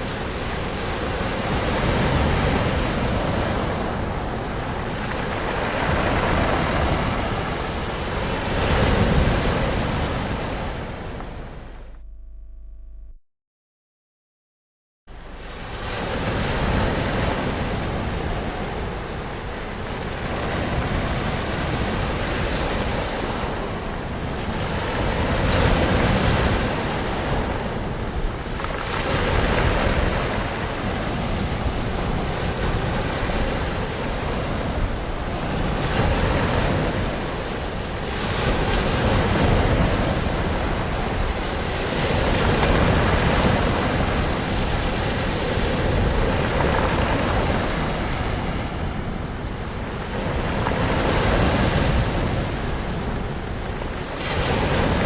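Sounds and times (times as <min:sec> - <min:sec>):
waves breaking: 0:00.0 - 0:11.9, 0:15.1 - 0:55.0
deep low surf rumble: 0:10.8 - 0:13.2.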